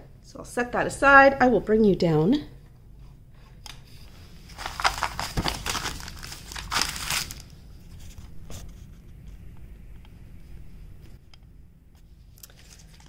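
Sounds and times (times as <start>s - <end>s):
plastic packaging crinkling: 4.4s - 7.6s.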